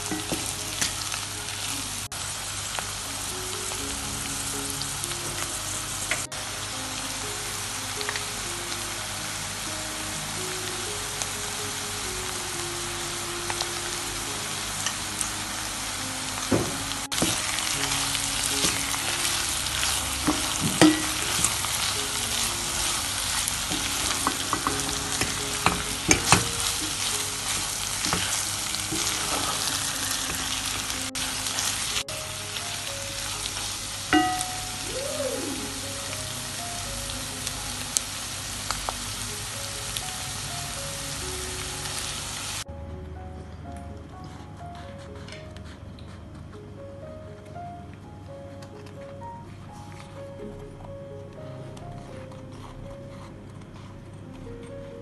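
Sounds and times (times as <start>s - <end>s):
food sizzling in a frying pan: 0.0s - 42.6s
spatula scraping a pan: 17.2s - 32.0s.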